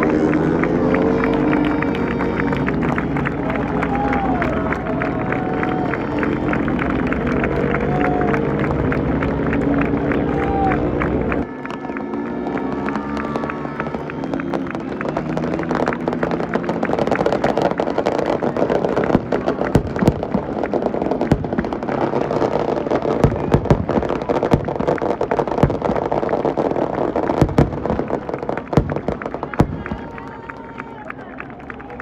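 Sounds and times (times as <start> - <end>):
motorcycle engine: 0.0 - 22.4
sharp pops and bangs: 15.4 - 30.1.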